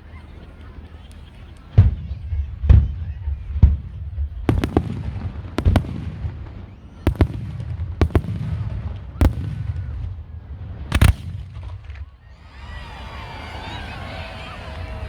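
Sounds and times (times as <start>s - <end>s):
fireworks bangs: 0.6s - 12.3s.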